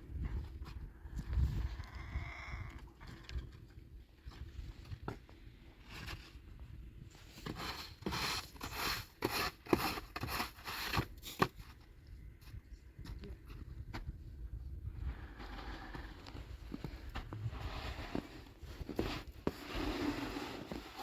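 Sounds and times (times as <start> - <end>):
rustling and scraping strokes: 15.1 - 21.0.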